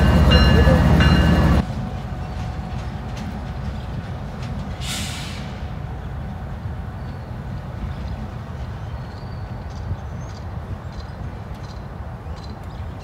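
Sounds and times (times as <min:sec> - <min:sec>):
diesel locomotive rumbling: 0:00.0 - 0:13.0
short hiss: 0:04.8 - 0:05.6.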